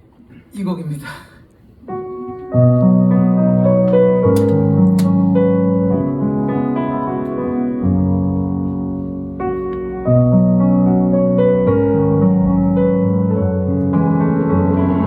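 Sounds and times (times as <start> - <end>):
electric piano chords: 1.8 - 15.0
deep bass notes: 8.0 - 15.0.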